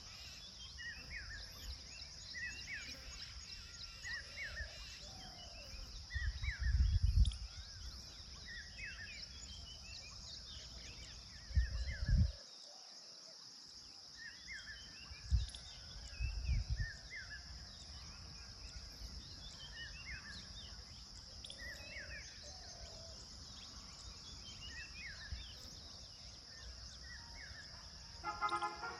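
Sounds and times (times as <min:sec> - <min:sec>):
high insect drone: 0:00.0 - 0:12.3
small birds chirping: 0:13.7 - 0:28.9.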